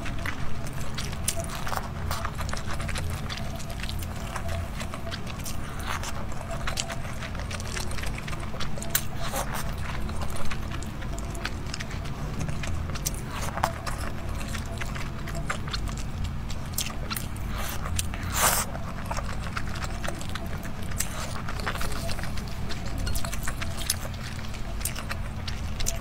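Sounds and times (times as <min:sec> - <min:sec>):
steady low hum: 0:00.0 - 0:26.0
wet chewing and mouth smacks: 0:00.0 - 0:26.0.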